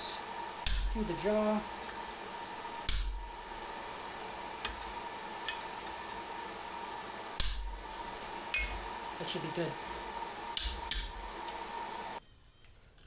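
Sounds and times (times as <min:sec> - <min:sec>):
steady hiss and hum: 0:00.0 - 0:12.2.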